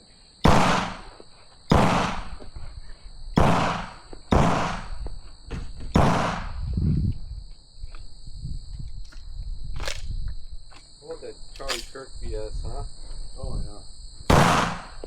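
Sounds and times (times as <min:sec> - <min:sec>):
gunshots with long echo: 0:00.4 - 0:02.4, 0:03.4 - 0:05.0, 0:06.0 - 0:06.6, 0:14.3 - 0:15.0.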